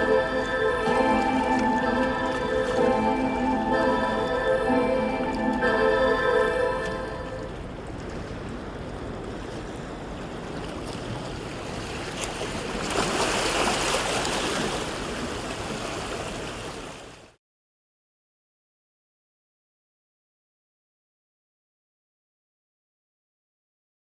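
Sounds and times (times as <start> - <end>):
music: 0.0 - 7.5
sea water rushing: 0.0 - 17.1.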